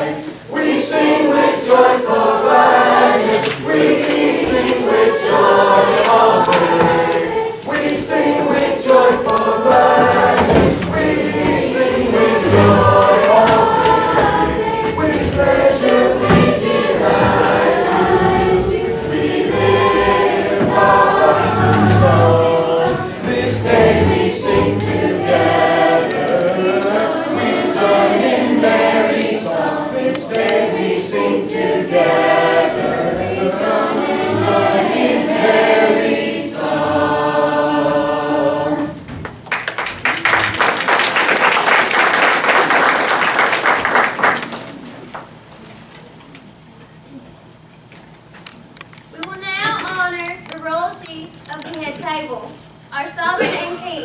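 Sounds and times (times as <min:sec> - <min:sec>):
choir singing: 0:00.0 - 0:39.1
audience applause: 0:39.4 - 0:45.2.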